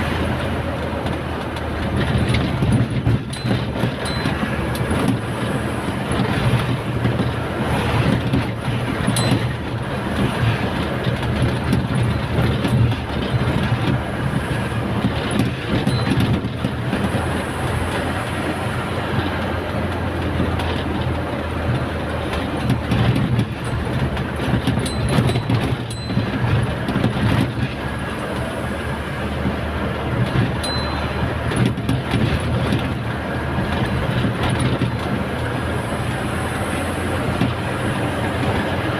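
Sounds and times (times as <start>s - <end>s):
truck engine and road noise: 0.0s - 38.9s
clicks and rattles: 21.8s - 28.4s.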